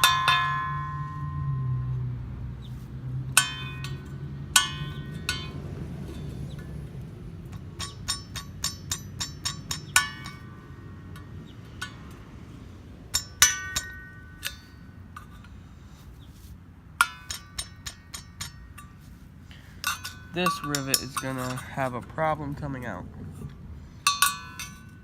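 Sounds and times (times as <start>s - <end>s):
light hammer strikes on steel: 3.3s - 6.8s, 7.4s - 12.3s, 13.0s - 15.6s, 17.0s - 23.0s, 23.9s - 25.0s.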